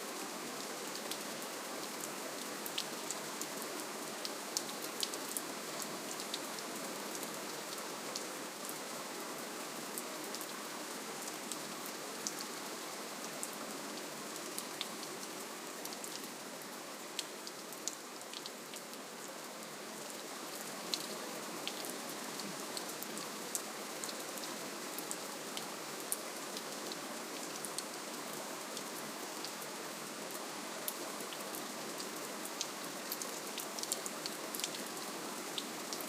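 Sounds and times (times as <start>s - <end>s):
gentle rain hiss: 0.0s - 36.0s
raindrops ticking on a surface: 0.9s - 8.8s, 17.1s - 19.0s, 30.3s - 36.0s.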